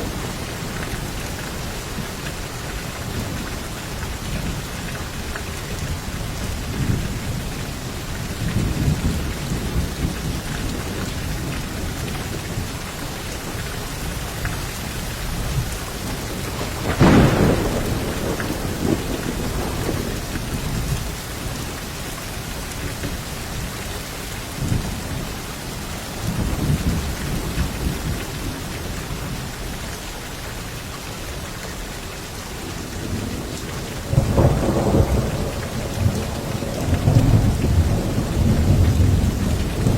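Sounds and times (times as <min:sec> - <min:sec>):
heavy rain: 0:00.0 - 0:39.9
rolling thunder: 0:15.1 - 0:21.2, 0:33.0 - 0:39.9
loud thunderclap: 0:15.5 - 0:21.0, 0:33.0 - 0:39.9.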